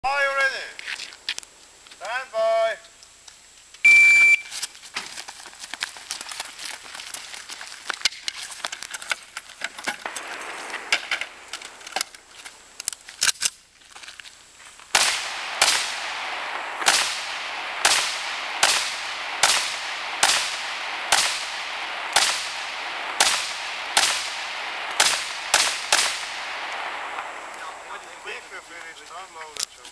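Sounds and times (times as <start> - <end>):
faint sharp cracks: 7.8 - 29.9
rifle shots echoing: 10.0 - 12.3, 14.9 - 28.7.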